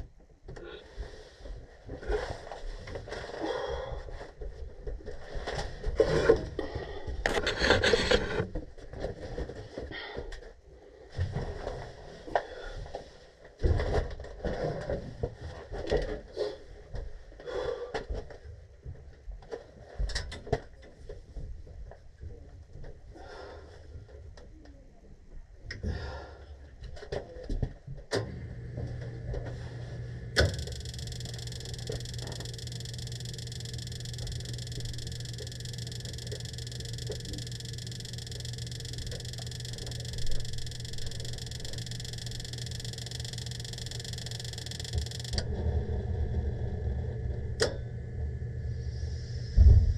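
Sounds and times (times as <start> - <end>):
low motor hum: 28.2 - 49.9.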